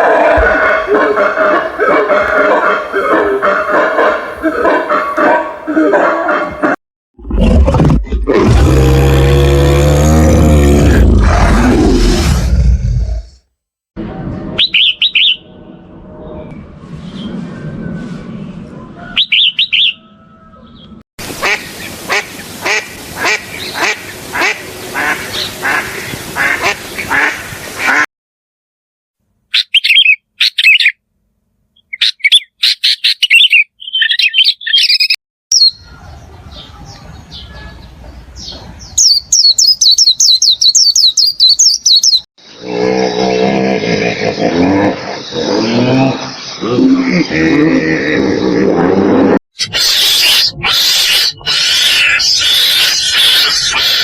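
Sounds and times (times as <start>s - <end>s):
duck quacking: 0.2s - 6.8s, 21.4s - 28.0s, 49.6s - 54.0s
high bird chirps: 14.6s - 15.6s, 19.1s - 20.1s, 29.5s - 31.0s, 31.8s - 42.6s.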